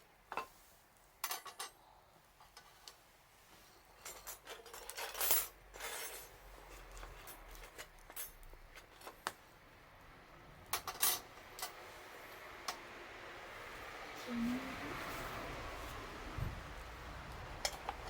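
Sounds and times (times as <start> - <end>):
light clinks of hard objects: 3.9 - 9.3.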